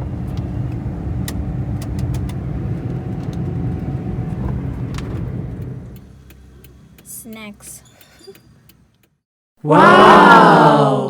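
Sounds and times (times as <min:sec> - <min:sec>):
car engine and road noise: 0:00.0 - 0:09.2.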